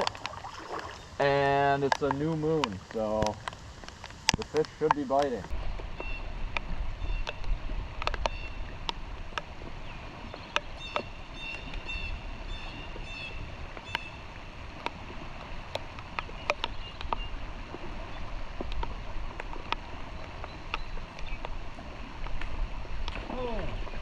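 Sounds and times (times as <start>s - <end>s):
raindrop ticks: 0.0s - 24.0s
stream water flowing: 0.0s - 24.0s
bird chirping: 9.8s - 14.2s.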